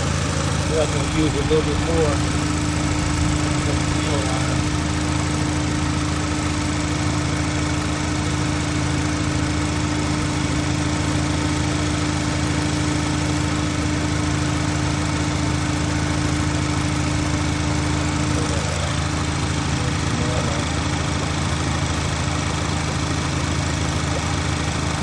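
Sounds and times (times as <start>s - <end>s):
car engine idling: 0.0s - 25.0s
steady tone: 0.7s - 6.3s.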